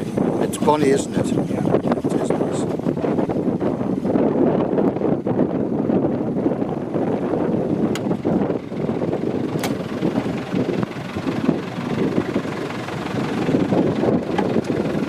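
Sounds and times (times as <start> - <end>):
wind buffeting microphone: 0.0 - 15.0
steam locomotive rumble: 6.8 - 15.0.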